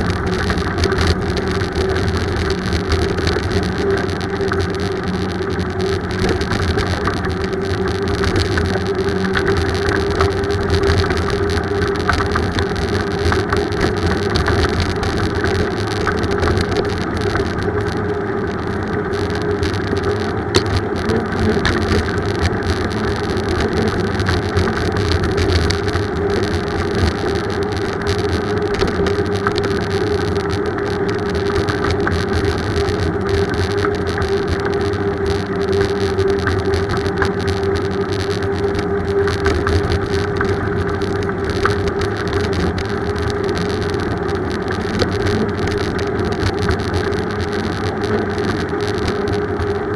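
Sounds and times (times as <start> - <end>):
bicycle rolling and wind noise: 0.0 - 49.9
constant hum: 0.0 - 49.9.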